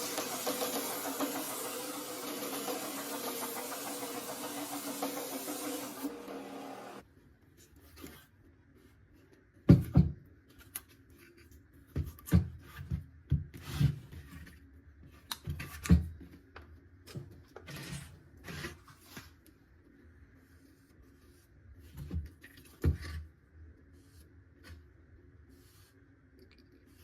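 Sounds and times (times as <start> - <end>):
motor running: 0.0 - 7.0.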